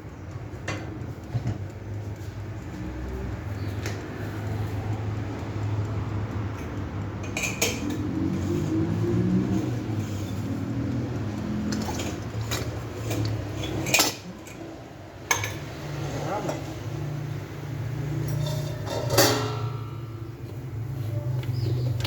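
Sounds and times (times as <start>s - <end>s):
metal utensil clinking in bowl: 11.2s - 16.7s, 18.2s - 20.2s.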